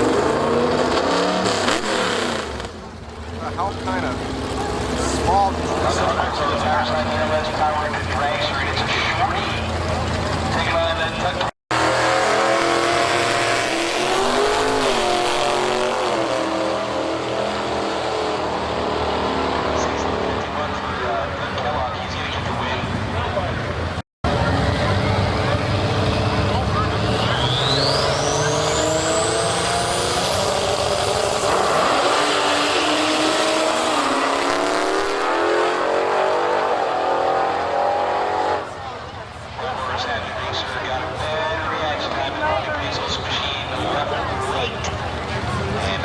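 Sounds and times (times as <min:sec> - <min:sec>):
drag racing car engine running: 0:00.0 - 0:46.0.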